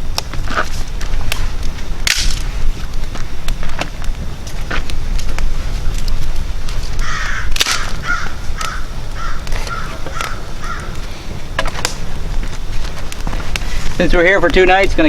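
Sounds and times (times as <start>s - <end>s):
low wind rumble: 0.0s - 15.0s
sharp cracks: 0.1s - 14.6s
bird cawing: 7.0s - 11.4s.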